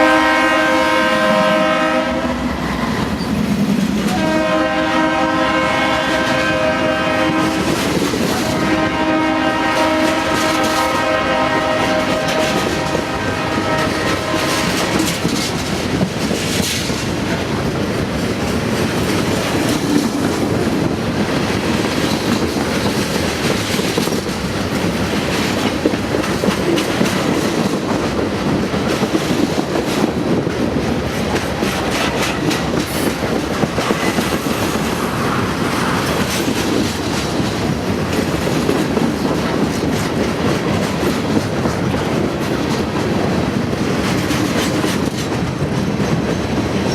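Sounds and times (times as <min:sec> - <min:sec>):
train horn: 0:00.0 - 0:03.2, 0:04.1 - 0:15.4
train wheels clattering: 0:02.6 - 0:46.9.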